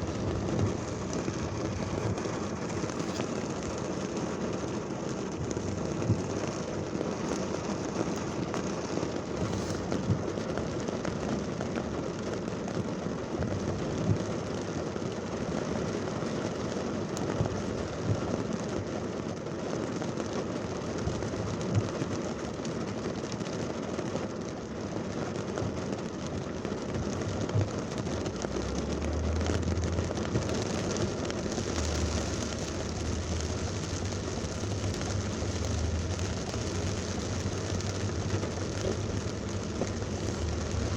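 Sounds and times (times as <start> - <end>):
traffic: 0.0 - 19.2, 25.5 - 40.9
heavy rain pouring: 0.0 - 40.9
low rumble: 27.3 - 40.9.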